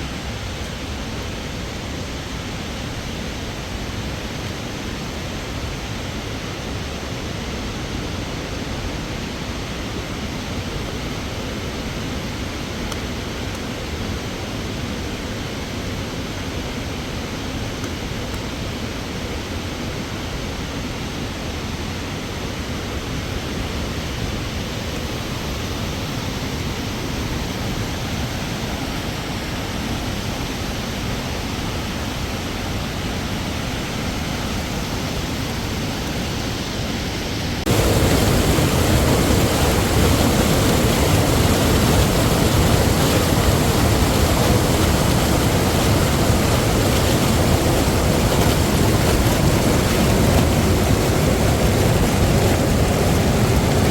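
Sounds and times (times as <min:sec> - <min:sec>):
waterfall roaring: 0:24.1 - 0:53.9.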